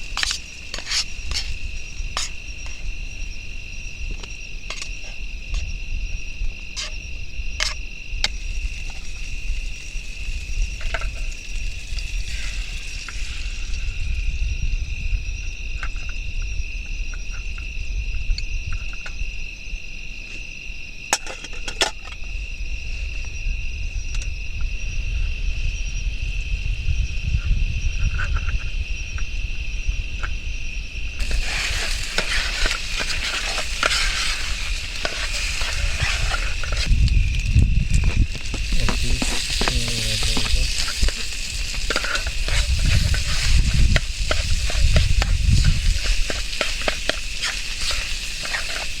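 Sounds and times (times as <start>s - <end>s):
loud frying sizzle: 0.0s - 2.8s, 7.6s - 14.3s, 31.2s - 49.0s
crickets trilling: 0.0s - 49.0s.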